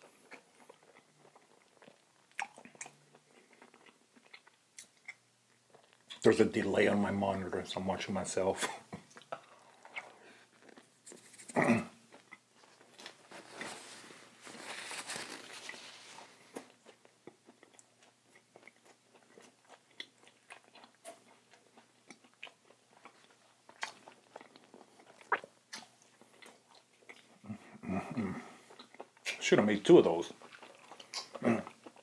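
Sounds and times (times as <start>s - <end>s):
biting and crunchy chewing: 0.0s - 6.3s, 8.9s - 32.0s
wet mouth clicks: 2.3s - 3.0s, 30.9s - 31.5s.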